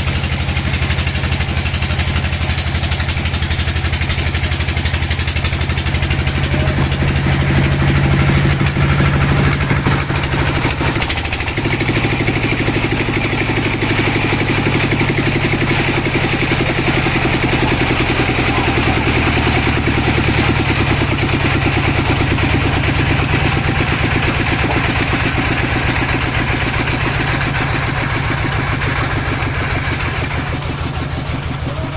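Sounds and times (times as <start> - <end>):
sawmill engine running: 0.0 - 31.9.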